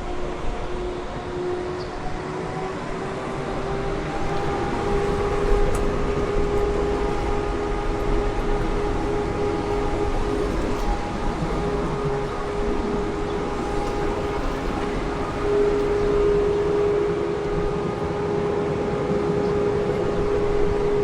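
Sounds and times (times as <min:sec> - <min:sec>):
road and tyre noise: 0:00.0 - 0:21.0.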